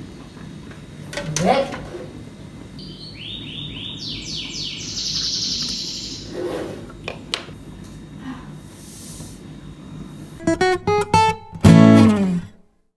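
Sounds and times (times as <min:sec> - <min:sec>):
steady low hum: 0:00.0 - 0:10.4
bird singing: 0:02.7 - 0:06.6.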